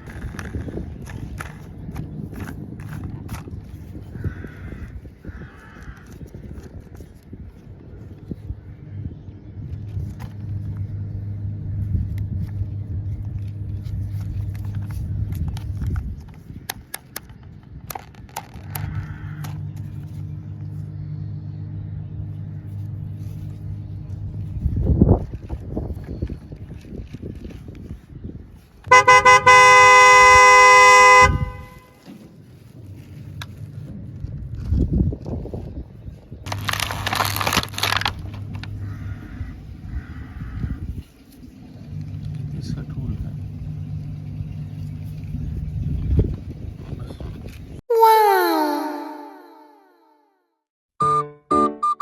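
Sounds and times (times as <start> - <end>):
vehicle engine hum: 0.0 - 47.8
toy electronic horn toots: 28.9 - 31.9.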